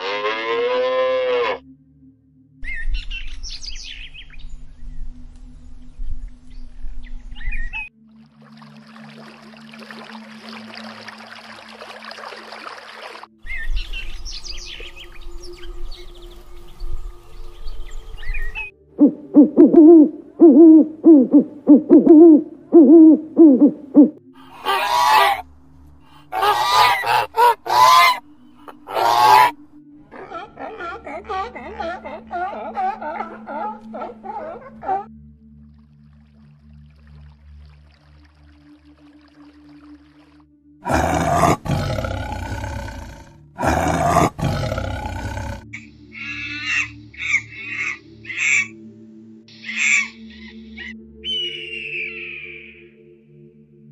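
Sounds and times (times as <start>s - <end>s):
geese honking: 24.4s - 25.4s, 26.3s - 29.6s
tiger roaring: 40.8s - 45.7s.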